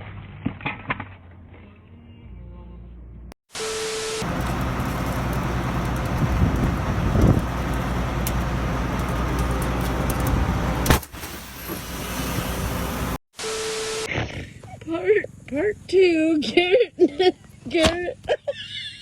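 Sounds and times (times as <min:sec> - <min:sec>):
low vehicle rumble: 0:04.2 - 0:13.2
vehicle rushing hiss: 0:04.3 - 0:13.2.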